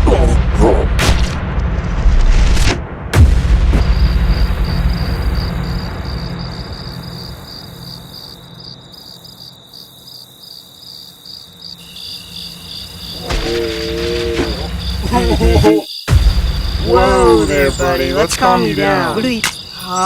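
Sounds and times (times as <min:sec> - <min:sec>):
low boom rumble: 0:00.0 - 0:07.9, 0:13.3 - 0:18.3
crickets chirping: 0:03.8 - 0:20.0.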